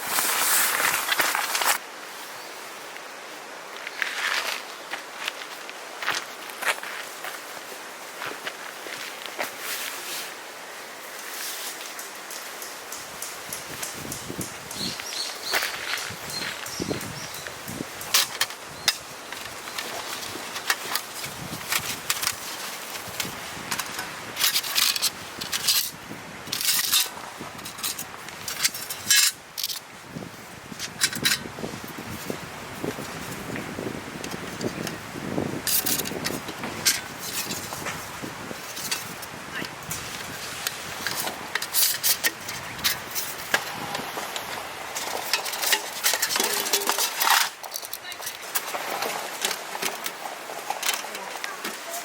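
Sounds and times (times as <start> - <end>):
objects clicking and knocking: 39.9 - 52.0
metal gear clinking and scraping: 45.0 - 48.4.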